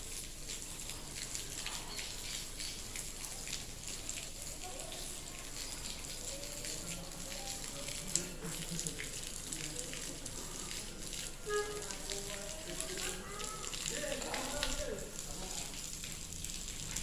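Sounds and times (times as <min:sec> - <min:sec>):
rain and ash pattering: 0:00.0 - 0:17.0
faint voices: 0:04.1 - 0:16.0.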